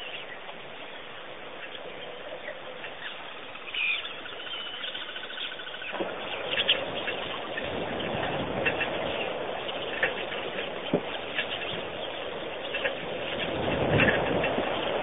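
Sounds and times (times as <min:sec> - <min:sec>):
birds chirping and calling: 0:00.0 - 0:15.0
bird rapid trill: 0:02.9 - 0:15.0
steady rushing noise: 0:05.7 - 0:15.0.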